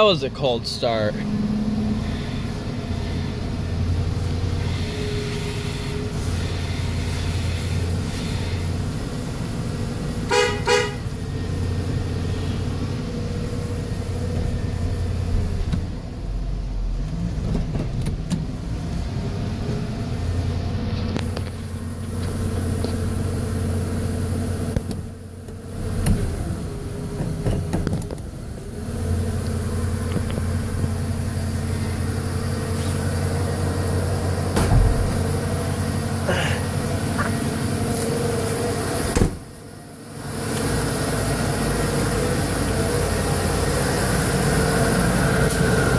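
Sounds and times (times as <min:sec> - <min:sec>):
truck engine idling: 0:00.0 - 0:45.9
horn double beep: 0:10.3 - 0:11.1.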